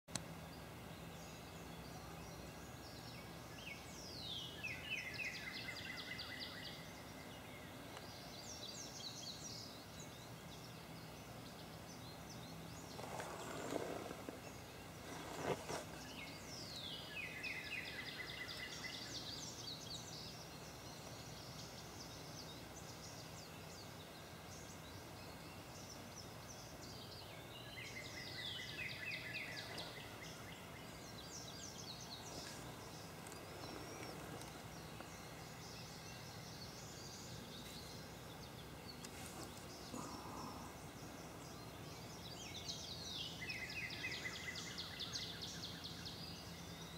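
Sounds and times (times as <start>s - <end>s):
songbird singing trills: 0.1s - 46.9s.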